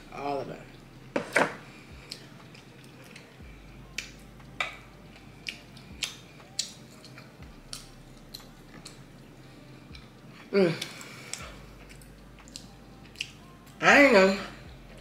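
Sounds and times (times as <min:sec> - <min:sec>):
wet chewing clicks and smacks: 0:04.0 - 0:09.0, 0:11.0 - 0:13.8.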